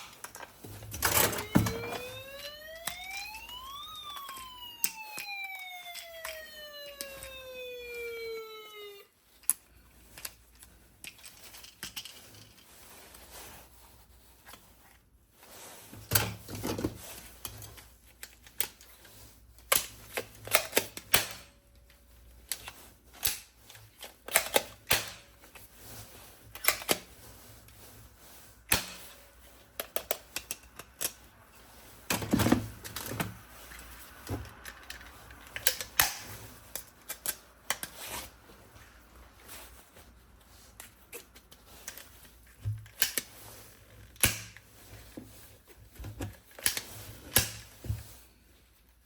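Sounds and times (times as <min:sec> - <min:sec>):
objects clicking and knocking: 0:11.0 - 0:12.7.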